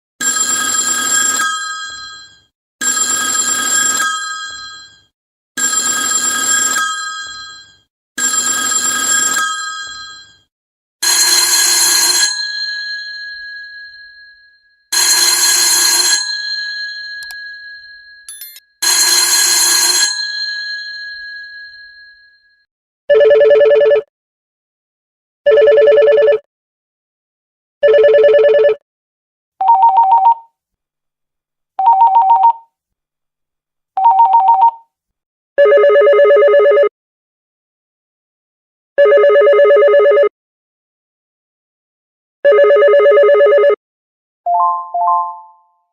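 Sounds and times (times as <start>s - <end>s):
telephone bells ringing: 0.2s - 10.4s, 11.0s - 22.5s
lower-pitched telephone ringer: 11.0s - 22.5s, 44.5s - 45.9s.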